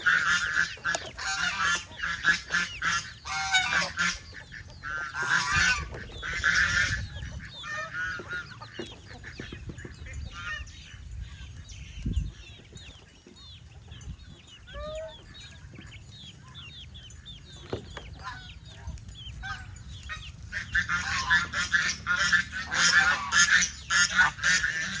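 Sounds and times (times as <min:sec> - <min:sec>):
geese honking: 0:00.0 - 0:10.8, 0:18.0 - 0:25.0.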